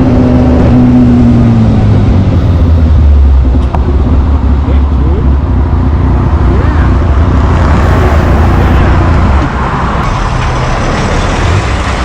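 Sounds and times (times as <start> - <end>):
motorcycle engine running: 0.0 - 9.9
wind noise on microphone: 0.0 - 10.3.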